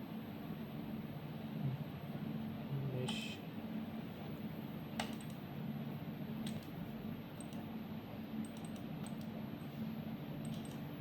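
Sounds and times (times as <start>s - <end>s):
computer mouse clicks: 5.0s - 5.4s, 6.4s - 6.8s, 7.4s - 7.7s, 8.4s - 9.4s, 10.4s - 10.9s.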